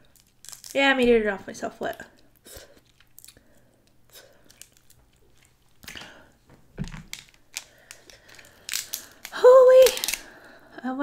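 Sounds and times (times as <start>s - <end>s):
person chewing: 2.2s - 6.2s.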